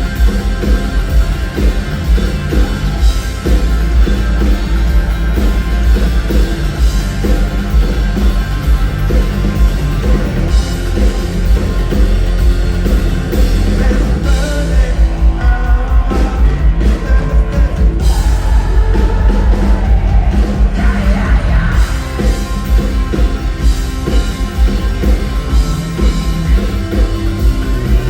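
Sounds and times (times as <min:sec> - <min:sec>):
live rock band playing: 0:00.0 - 0:28.0.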